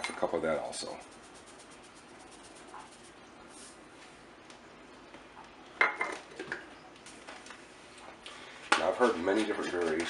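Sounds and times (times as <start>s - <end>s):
kitchenware clinking: 5.8s - 6.7s.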